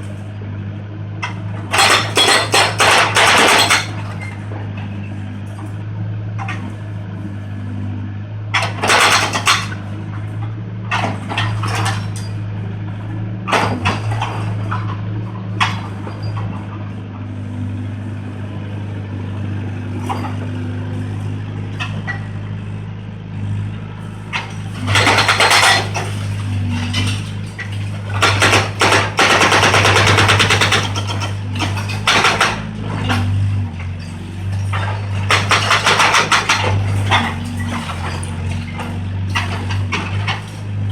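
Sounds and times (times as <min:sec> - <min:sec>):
excavator diesel engine running: 0:00.0 - 0:40.9
concrete debris crashing and clattering: 0:01.6 - 0:04.3, 0:08.6 - 0:09.8, 0:24.3 - 0:40.9.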